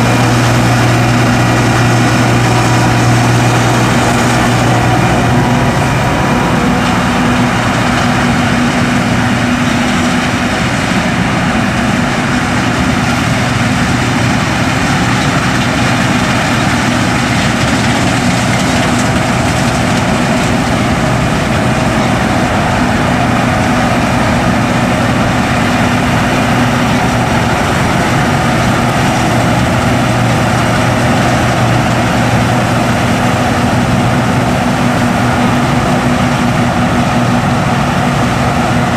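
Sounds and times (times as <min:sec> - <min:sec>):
combine harvester engine hum: 0:00.0 - 0:38.9.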